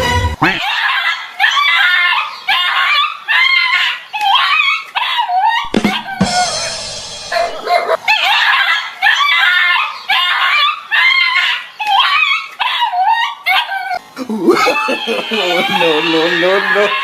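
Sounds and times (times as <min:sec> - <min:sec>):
dog yelping and whining: 0:00.6 - 0:06.6, 0:07.3 - 0:14.0.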